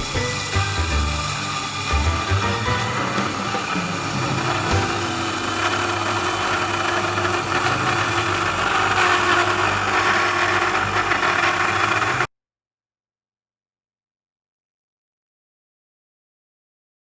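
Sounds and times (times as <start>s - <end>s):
router spindle motor whine: 0.0s - 12.3s.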